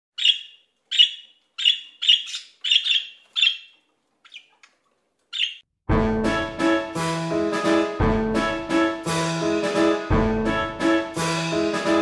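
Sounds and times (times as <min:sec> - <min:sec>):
bird chirping: 0:00.2 - 0:05.7
piano music: 0:05.9 - 0:12.0.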